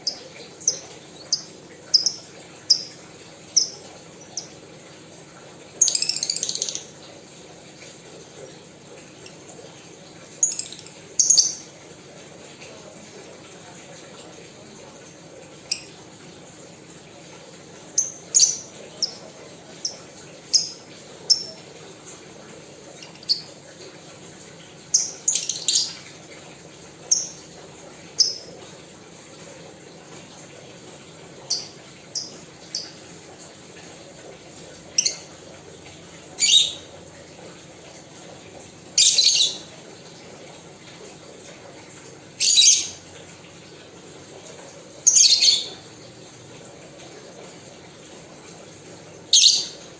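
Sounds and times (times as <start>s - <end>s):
birds chirping: 0.0s - 4.6s, 10.3s - 11.8s, 17.8s - 21.8s, 22.8s - 23.6s, 24.6s - 26.2s, 34.9s - 35.4s, 36.3s - 37.0s, 39.0s - 39.8s, 42.4s - 43.0s, 45.0s - 46.2s, 49.3s - 49.9s.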